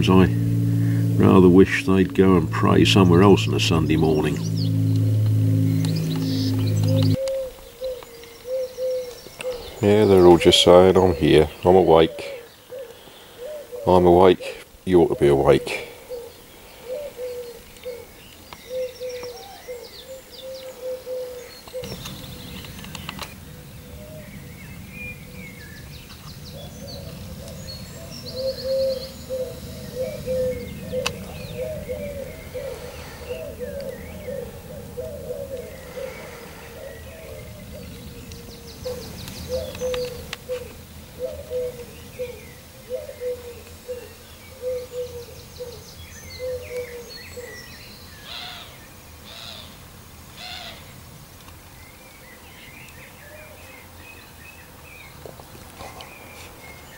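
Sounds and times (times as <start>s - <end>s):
low background rumble: 0.0s - 7.2s
pigeons cooing: 0.0s - 47.7s
songbirds chirping and trilling: 0.0s - 56.9s.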